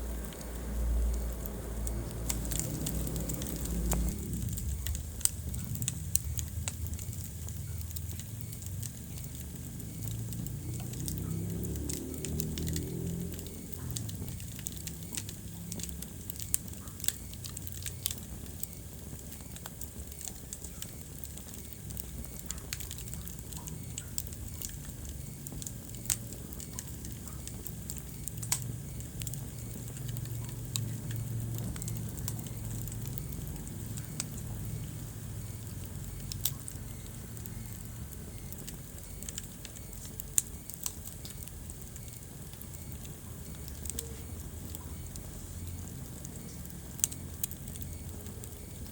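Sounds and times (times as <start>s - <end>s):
fire crackling and popping: 0.0s - 48.9s
low rumble of flames: 0.0s - 48.9s.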